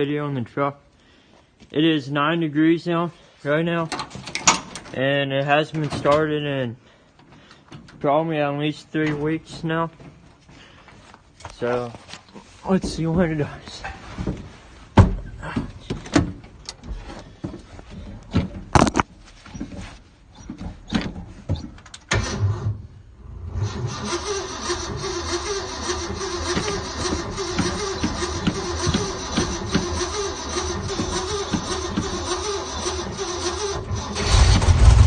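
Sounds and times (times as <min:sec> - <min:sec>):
starter cranking engine: 0:23.5 - 0:35.0.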